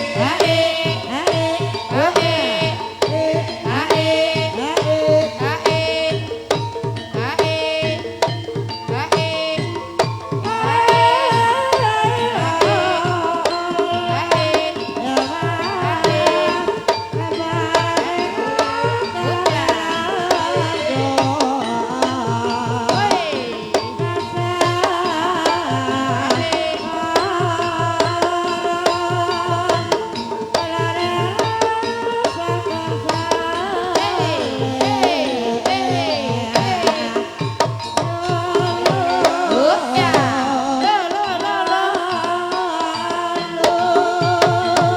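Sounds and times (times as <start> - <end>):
hand drums beating fast rhythm: 0.0 - 44.9
ringing pitched melody: 0.0 - 44.9.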